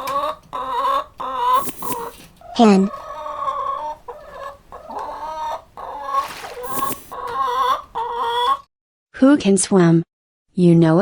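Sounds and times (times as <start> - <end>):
hen clucking: 0.0 - 8.7.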